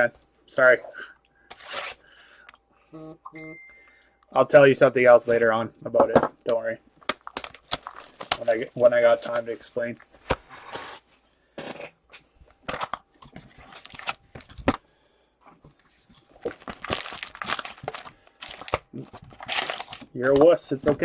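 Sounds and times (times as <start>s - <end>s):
foil wrappers crinkling and tearing: 7.0s - 10.0s, 13.6s - 14.6s, 16.4s - 21.0s.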